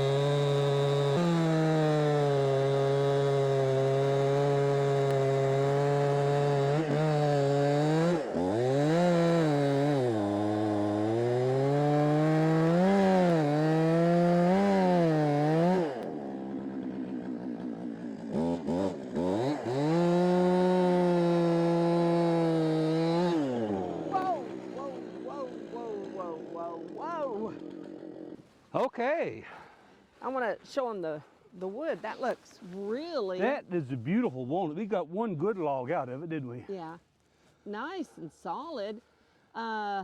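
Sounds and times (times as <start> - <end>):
chainsaw cutting a log: 0.0 - 28.5.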